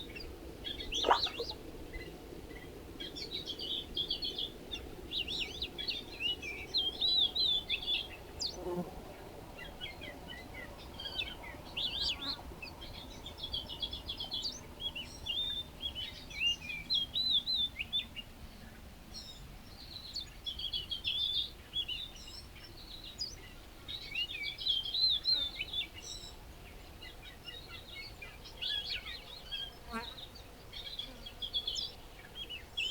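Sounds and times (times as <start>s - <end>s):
small birds chirping: 0.1s - 1.6s.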